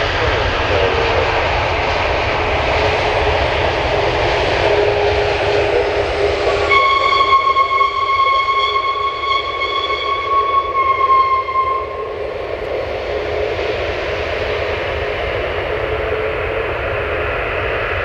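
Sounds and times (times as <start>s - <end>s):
high-pitched whine: 0.0s - 18.0s
jet engines roaring: 0.0s - 18.0s.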